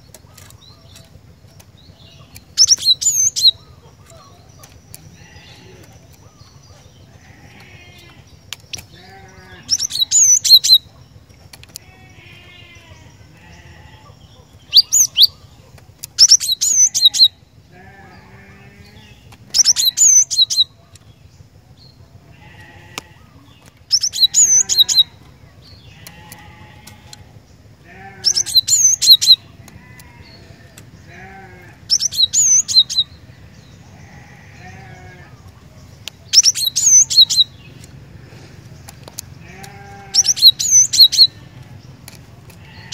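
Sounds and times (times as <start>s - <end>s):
bird singing ringing notes: 0.0s - 11.0s, 11.7s - 15.6s, 16.2s - 38.1s, 38.8s - 42.9s
bird twittering: 0.0s - 11.0s, 11.7s - 21.2s, 21.9s - 42.9s
low steady hum: 0.0s - 42.9s.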